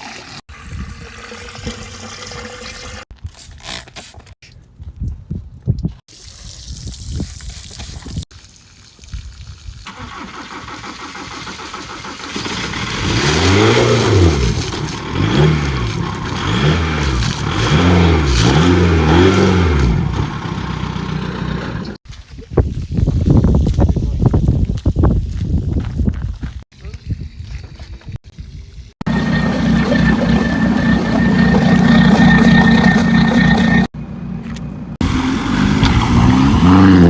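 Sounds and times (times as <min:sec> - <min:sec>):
car engine revving: 0:12.4 - 0:22.0, 0:29.1 - 0:33.9, 0:35.0 - 0:37.0.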